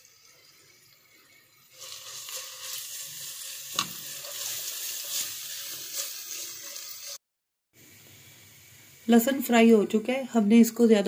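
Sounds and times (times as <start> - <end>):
paste sizzling in hot oil: 0.0 - 7.2
spatula stirring in pan: 1.7 - 7.2.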